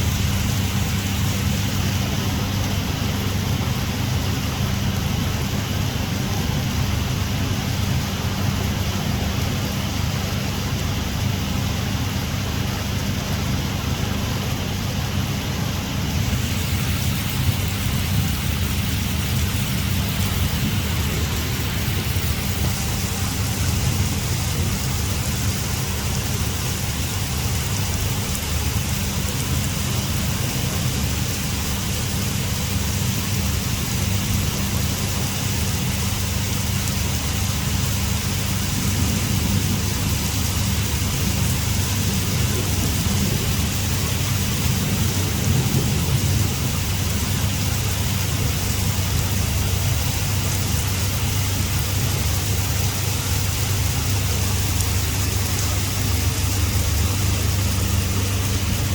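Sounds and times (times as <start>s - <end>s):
heavy rain falling: 0.0s - 58.9s
low rumble: 13.6s - 35.3s, 52.0s - 58.9s.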